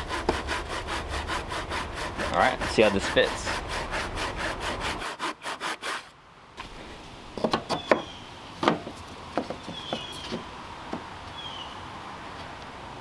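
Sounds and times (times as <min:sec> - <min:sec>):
hand saw cutting wood: 0:00.0 - 0:06.1
wooden knocks and taps: 0:07.4 - 0:11.1.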